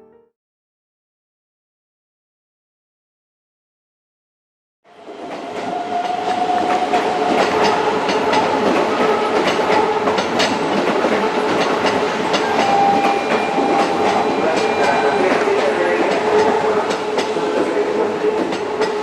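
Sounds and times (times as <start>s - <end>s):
steady train whine: 4.9s - 19.0s
train wheels clicking over rail joints: 5.3s - 19.0s.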